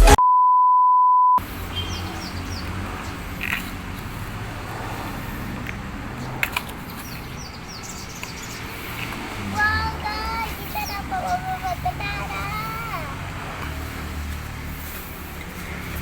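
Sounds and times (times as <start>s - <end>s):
steady electronic beep: 0.0s - 1.4s
small birds chirping: 1.4s - 16.0s
faint clicks: 3.4s - 4.1s.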